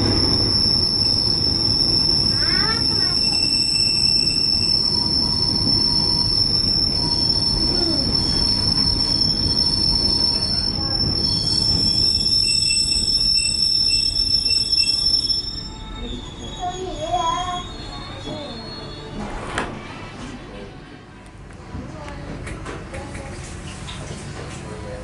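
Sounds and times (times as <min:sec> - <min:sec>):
train rumbling on rails: 0:00.0 - 0:24.9
high-pitched wheel squeal: 0:00.1 - 0:19.2.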